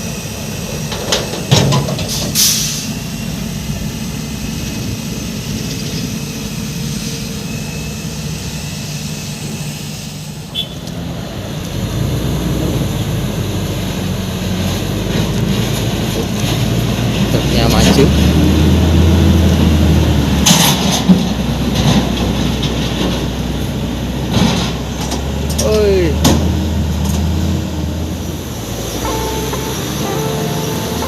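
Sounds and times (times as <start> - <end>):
diesel truck engine running: 0.0 - 31.0
air hiss: 2.1 - 3.0.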